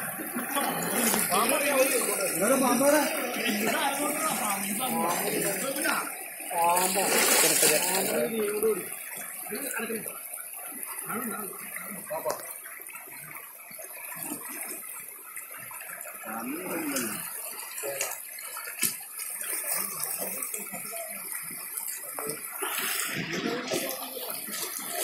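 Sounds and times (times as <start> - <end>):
floodwater flowing: 0.0 - 25.0
faint voices: 19.8 - 25.0.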